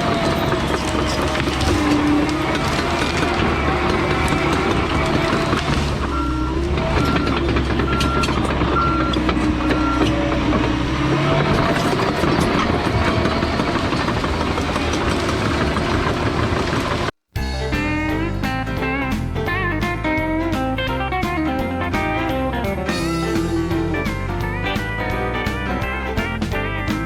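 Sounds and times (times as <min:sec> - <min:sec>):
bulldozer diesel engine under load: 0:00.0 - 0:27.0
backup alarm beeping: 0:06.1 - 0:10.2.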